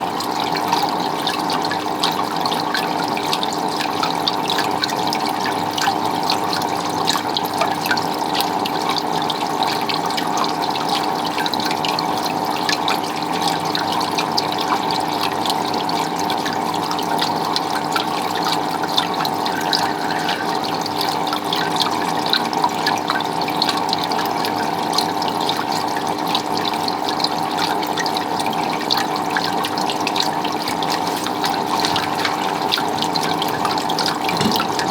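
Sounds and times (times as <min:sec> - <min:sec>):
water dripping: 0:17.5 - 0:21.8
water rushing and splashing: 0:19.2 - 0:21.3, 0:29.6 - 0:34.9.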